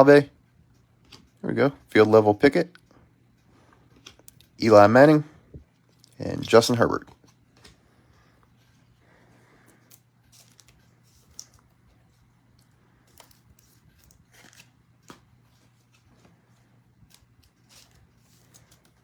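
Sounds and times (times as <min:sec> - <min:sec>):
low steady hum: 0:00.0 - 0:19.0
cards and packaging rustling: 0:09.6 - 0:19.0.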